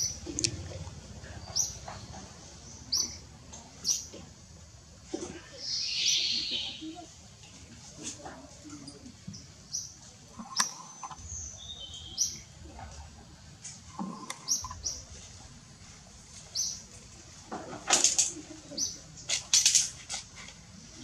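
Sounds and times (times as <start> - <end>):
small birds chirping: 0.0 - 4.2, 5.4 - 7.1, 8.7 - 13.1, 13.7 - 17.1.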